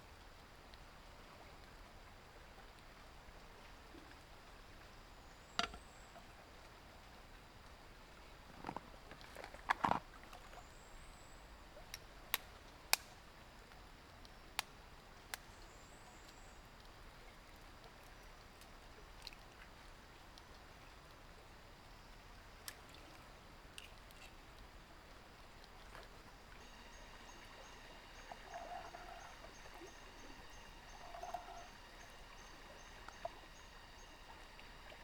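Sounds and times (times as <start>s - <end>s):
faint high chirps: 26.6s - 35.0s.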